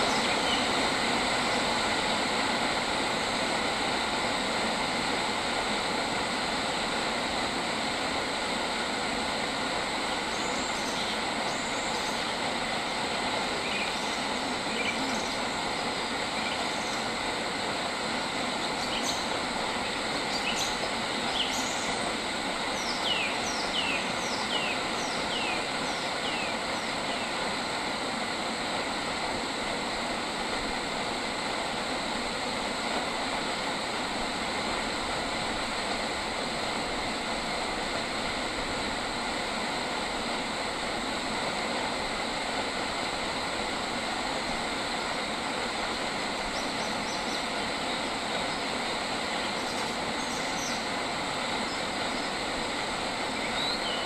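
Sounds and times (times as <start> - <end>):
wild birds chirping: 0.0 - 0.9, 13.1 - 17.2, 18.5 - 27.4, 46.5 - 52.5, 53.3 - 54.0
steady background hiss: 0.0 - 54.0.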